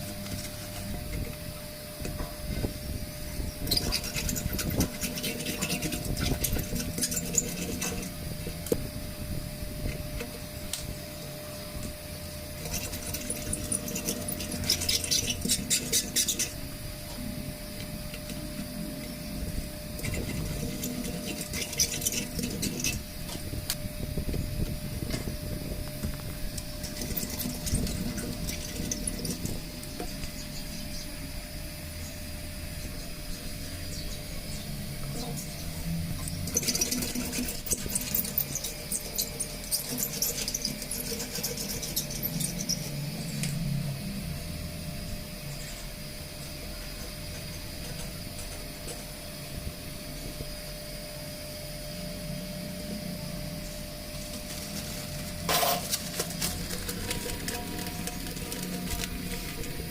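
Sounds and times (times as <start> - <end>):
faint steady hum: 0.0 - 59.9
tools clicking and rattling: 36.2 - 43.6, 54.5 - 59.9.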